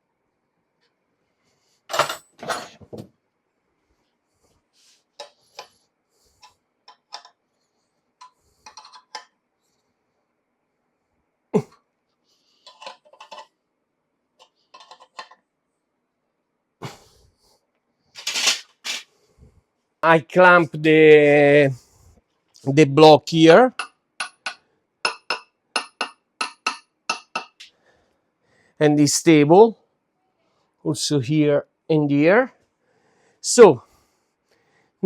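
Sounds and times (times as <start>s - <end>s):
metal clinks and knocks: 1.9s - 3.0s.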